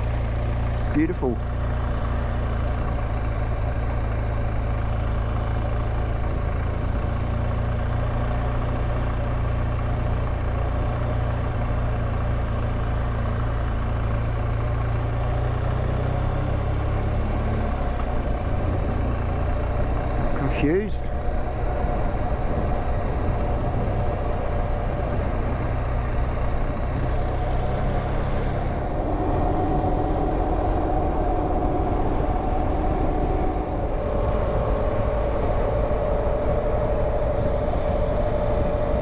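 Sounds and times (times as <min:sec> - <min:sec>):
motorcycle engine running: 0:00.0 - 0:39.0
wind and road noise: 0:00.0 - 0:39.0.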